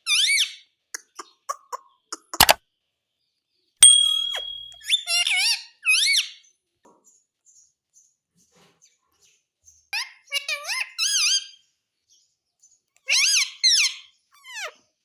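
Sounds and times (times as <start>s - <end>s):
parakeet whistling and calling: 3.8s - 6.4s.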